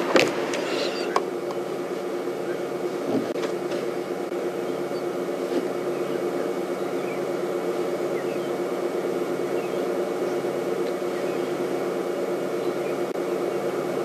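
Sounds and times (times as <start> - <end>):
low mechanical hum: 0.0 - 14.0
faint bird chirps: 0.6 - 1.2, 4.6 - 5.2, 5.8 - 7.3, 8.0 - 8.6, 9.4 - 10.4, 11.0 - 11.7.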